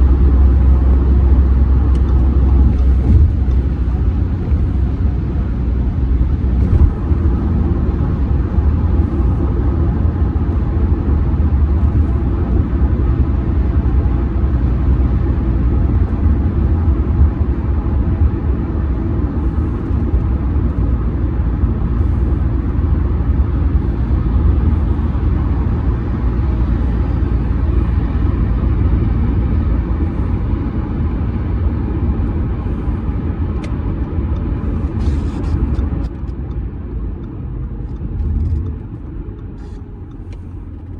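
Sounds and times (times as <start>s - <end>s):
diesel engine drone: 0.0s - 40.9s
road and tyre rumble: 0.0s - 40.9s.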